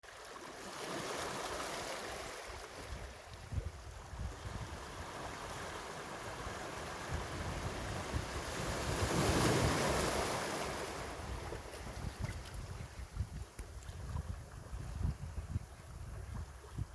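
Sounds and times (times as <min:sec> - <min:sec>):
wind buffeting microphone: 0:03.0 - 0:16.9
sea waves washing onto shore: 0:04.4 - 0:12.7.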